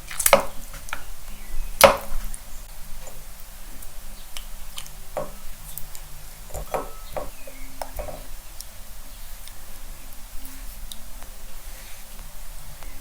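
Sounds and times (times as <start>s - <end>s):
utensils tapping on cutting board: 5.2s - 5.4s, 6.5s - 8.3s.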